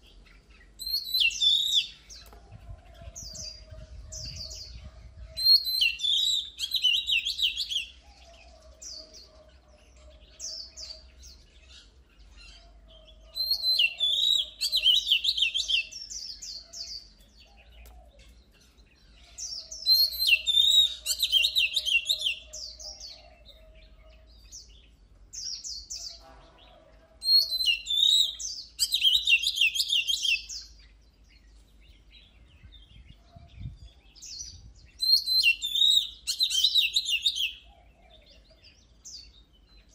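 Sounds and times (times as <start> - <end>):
bird singing whistled phrases: 0.8 - 2.0, 4.2 - 8.0, 13.3 - 16.6, 19.6 - 23.5, 27.2 - 30.7, 34.9 - 37.7.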